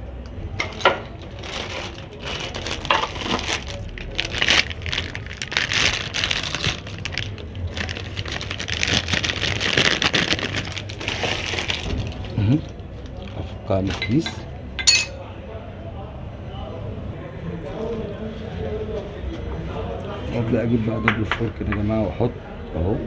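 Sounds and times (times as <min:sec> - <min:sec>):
plastic packaging crinkling: 0:00.5 - 0:15.1.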